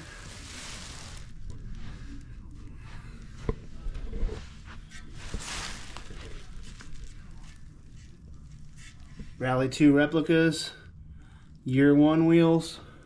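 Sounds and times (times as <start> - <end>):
rustling: 0.0 - 9.4.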